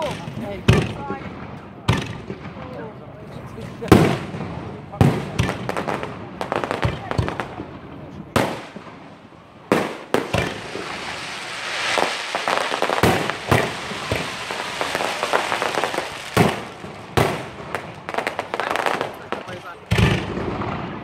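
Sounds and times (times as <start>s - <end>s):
crackle of firework stars: 5.3s - 21.0s
firework shells bursting: 8.4s - 20.4s.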